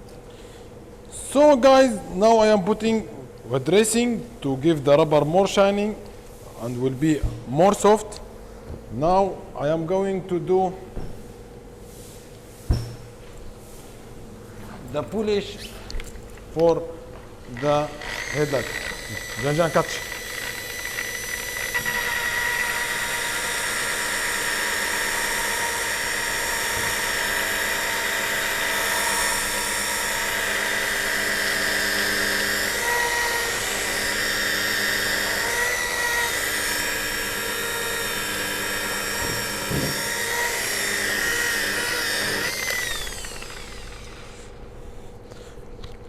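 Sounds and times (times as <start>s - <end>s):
polishing machine whining: 17.6s - 44.5s.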